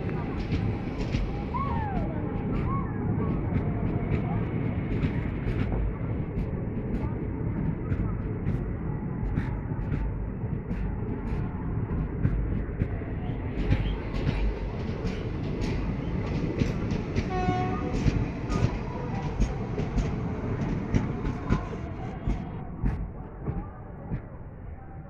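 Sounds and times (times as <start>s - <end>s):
train rumble: 0.0s - 25.0s
train horn blast: 17.3s - 18.0s.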